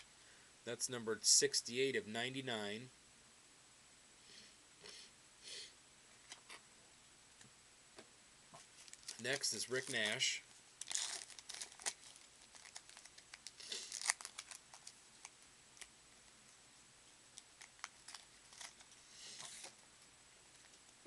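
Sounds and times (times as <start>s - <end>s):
wrapper tearing and crinkling: 8.8s - 10.2s, 10.8s - 15.9s, 17.4s - 19.7s.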